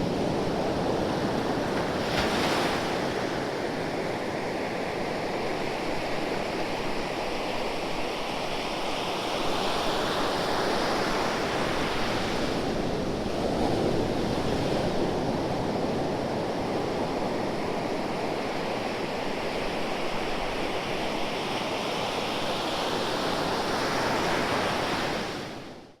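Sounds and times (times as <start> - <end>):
ocean waves breaking on shore: 0.0 - 7.2.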